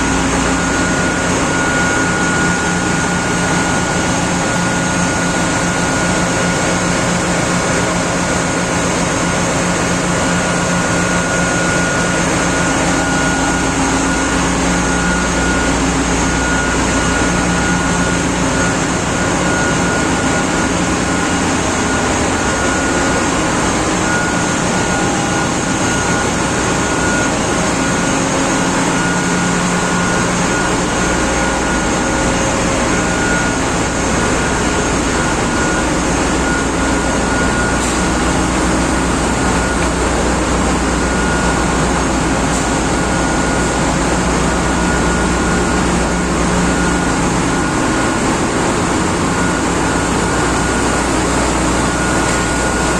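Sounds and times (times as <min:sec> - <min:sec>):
constant high whine: 0:00.0 - 0:52.9
deep machinery hum: 0:00.0 - 0:52.9
engine room machinery din: 0:00.0 - 0:52.9.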